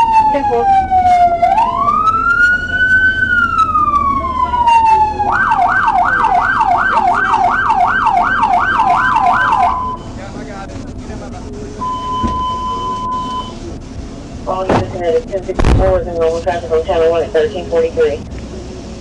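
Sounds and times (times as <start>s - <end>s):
police siren wailing and yelping: 0.0s - 10.1s.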